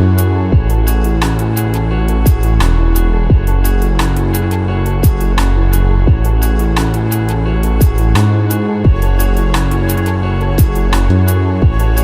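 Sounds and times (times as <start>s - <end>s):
deep kick drum sweeping down: 0.6s - 0.9s, 3.3s - 3.6s, 6.1s - 6.4s.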